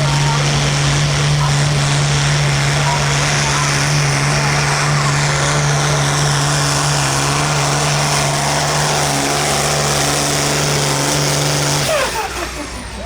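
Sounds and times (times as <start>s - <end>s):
tractor engine running hard: 0.0s - 13.0s.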